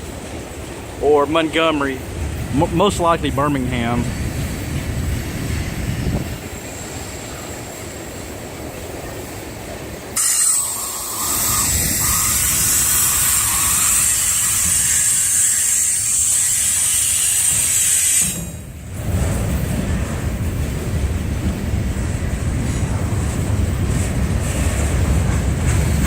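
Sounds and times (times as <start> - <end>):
freight train rumbling past: 0.0 - 26.0
loud steady high hiss: 10.2 - 18.8.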